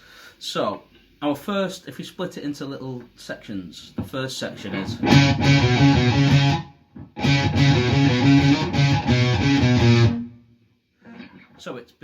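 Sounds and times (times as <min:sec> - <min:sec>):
electric guitar low riff: 0:04.8 - 0:10.4.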